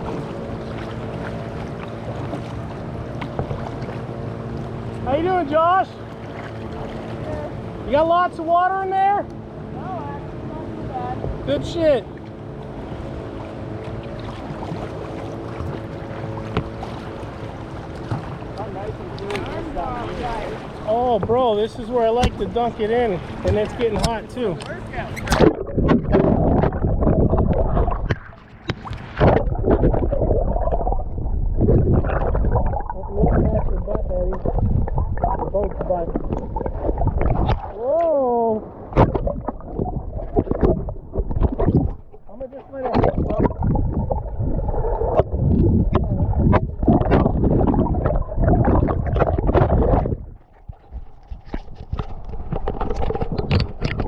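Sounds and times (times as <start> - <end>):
water sloshing and gurgling: 0.0 - 54.0
water splashes: 0.0 - 54.0
waves crashing against kayak: 14.4 - 54.0
low rumble: 17.2 - 54.0.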